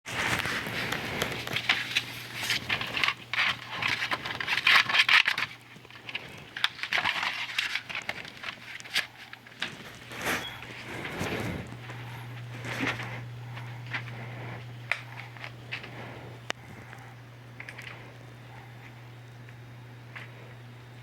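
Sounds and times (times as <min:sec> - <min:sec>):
crackling rustling with clicks: 0:00.1 - 0:21.0
steady low hum: 0:00.1 - 0:21.0.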